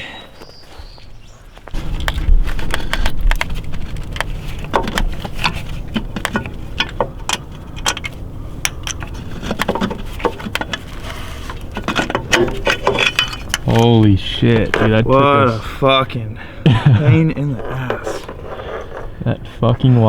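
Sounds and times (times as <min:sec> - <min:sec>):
low handling rumble: 0:01.7 - 0:20.0
metal tools clinking: 0:02.7 - 0:16.2.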